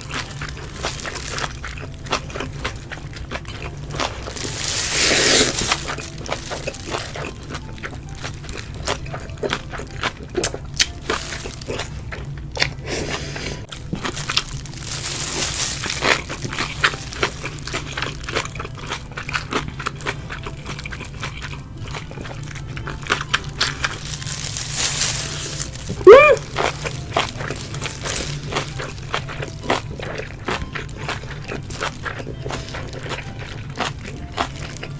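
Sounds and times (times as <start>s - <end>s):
crunching and rustling: 0.0s - 34.9s
wet chewing: 0.0s - 34.9s
hummed voice rising: 26.0s - 26.5s.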